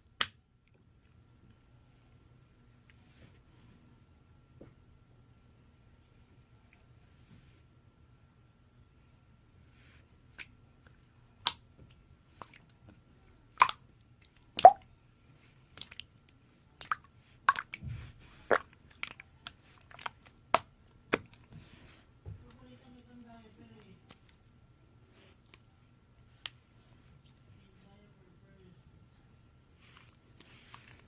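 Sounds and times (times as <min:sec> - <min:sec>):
slime squeezed wet pops: 0:13.6 - 0:13.8, 0:14.6 - 0:14.8, 0:16.8 - 0:17.8, 0:18.5 - 0:19.2.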